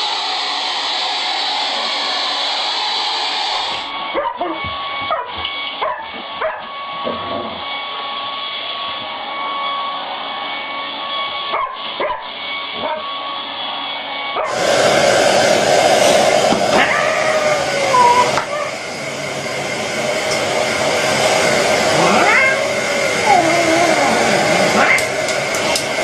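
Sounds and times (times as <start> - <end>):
hair dryer running: 0.0 - 26.0
dog yipping and barking: 4.2 - 6.6, 11.5 - 13.0, 16.8 - 18.8.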